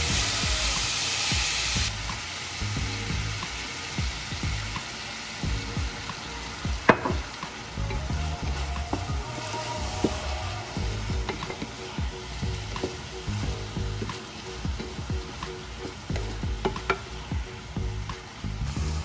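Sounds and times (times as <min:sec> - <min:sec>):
onions and fish sizzling in pan: 0:00.0 - 0:19.0
spatula knocking against pan: 0:06.7 - 0:07.3.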